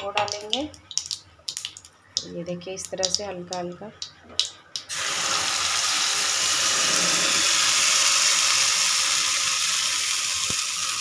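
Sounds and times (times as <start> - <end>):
paste sizzling in hot oil: 4.9 - 11.0.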